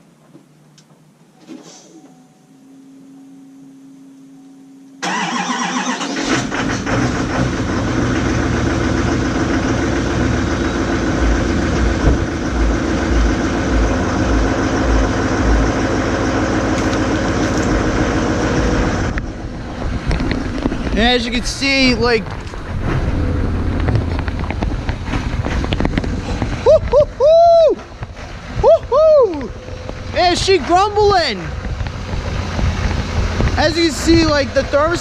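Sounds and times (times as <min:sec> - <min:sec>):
faint steady hum: 0:00.0 - 0:05.8
diesel engine cranking and idling: 0:05.0 - 0:35.0.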